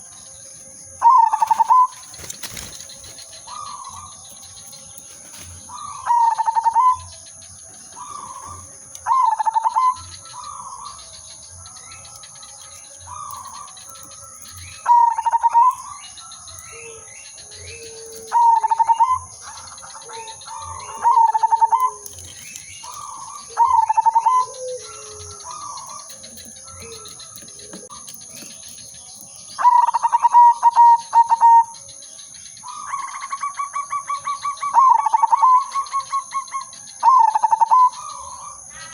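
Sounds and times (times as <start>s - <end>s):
dove cooing: 1.0s - 11.2s, 12.2s - 31.9s, 32.7s - 38.9s.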